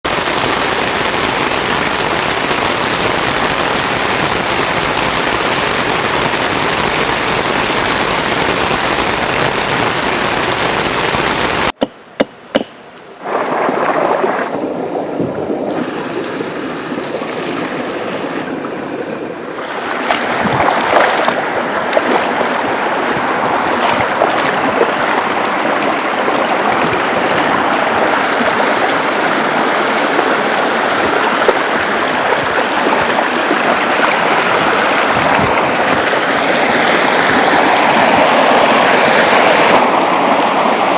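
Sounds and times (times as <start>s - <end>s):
rushing river water: 0.1s - 11.8s, 13.0s - 40.9s
thin high whine: 0.1s - 11.8s, 14.2s - 20.2s.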